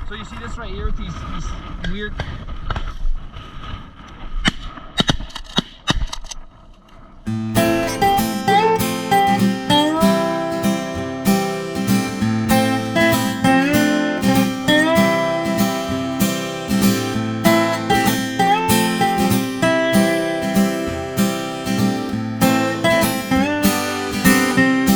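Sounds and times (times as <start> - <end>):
acoustic guitar strumming: 7.3 - 24.9.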